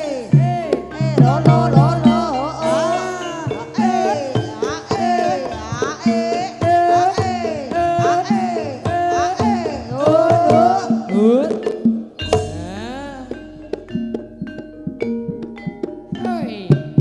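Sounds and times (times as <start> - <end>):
sliding melody line: 0.0 - 6.5, 12.2 - 16.9
gamelan music: 0.0 - 17.0
hand drum strokes: 0.0 - 17.0.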